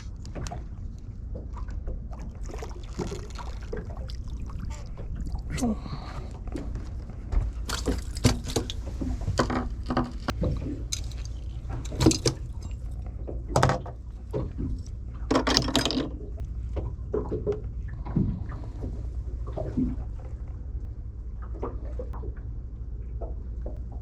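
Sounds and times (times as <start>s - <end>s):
steady low rumble: 0.0s - 15.5s, 16.1s - 24.0s
water splashes: 0.3s - 6.6s, 7.7s - 15.2s
knocks and rattles on boat: 6.4s - 20.5s.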